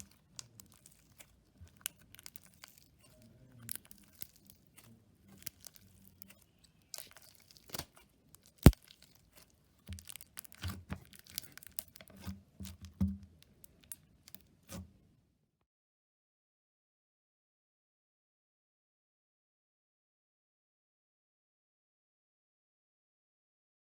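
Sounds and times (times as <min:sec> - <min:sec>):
slime popping and crackling: 0:00.0 - 0:12.3.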